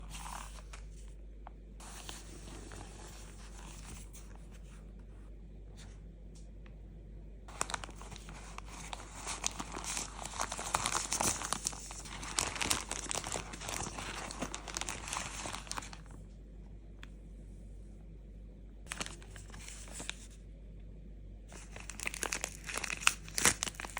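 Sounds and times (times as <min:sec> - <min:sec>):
wrapper crinkling and tearing: 0:07.5 - 0:16.2, 0:18.9 - 0:20.2, 0:21.5 - 0:23.9.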